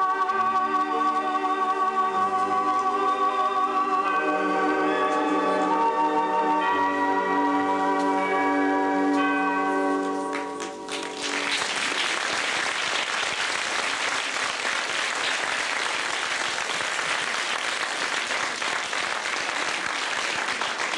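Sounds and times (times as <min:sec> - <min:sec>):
music closing chord: 0:00.0 - 0:11.5
audience applauding: 0:10.3 - 0:20.9.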